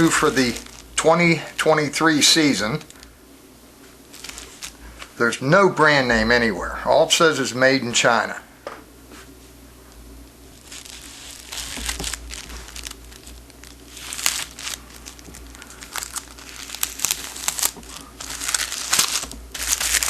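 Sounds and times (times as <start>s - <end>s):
cellophane wrapper crinkling: 0.0s - 3.1s, 4.0s - 5.2s, 10.5s - 20.0s.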